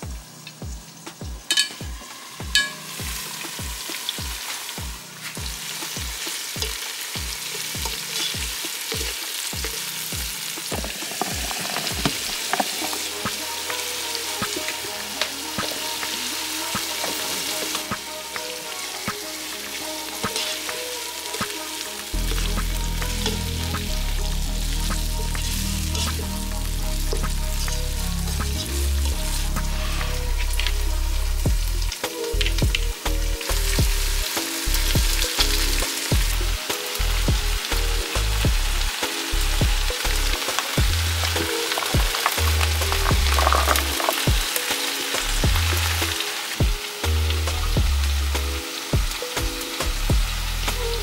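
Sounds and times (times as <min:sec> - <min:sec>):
food sizzling in a pan: 0:00.0 - 0:51.0
utensil stirring clicks and scrapes: 0:10.7 - 0:13.2, 0:41.3 - 0:44.6.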